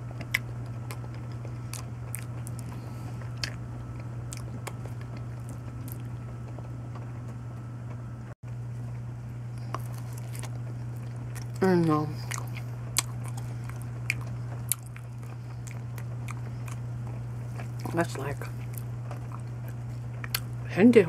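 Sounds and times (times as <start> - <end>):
person chewing banana: 0.0 - 7.1, 9.5 - 20.6
low hum: 0.0 - 21.0.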